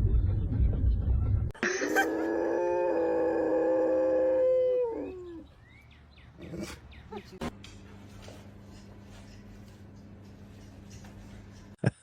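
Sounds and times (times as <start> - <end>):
low rumble: 0.0 - 1.6
dog howling: 2.0 - 5.5.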